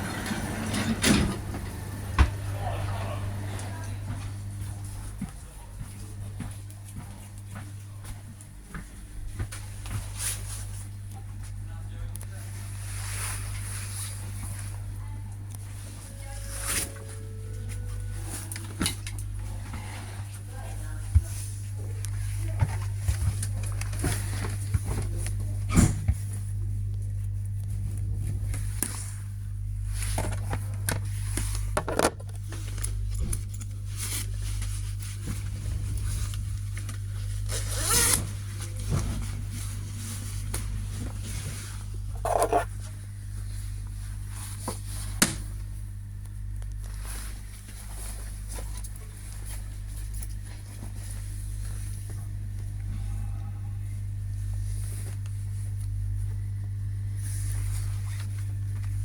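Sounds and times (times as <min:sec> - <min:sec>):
train hum inside carriage: 0:00.0 - 0:10.5, 0:12.6 - 0:22.0
clothing or bag rustling: 0:37.0 - 0:42.8.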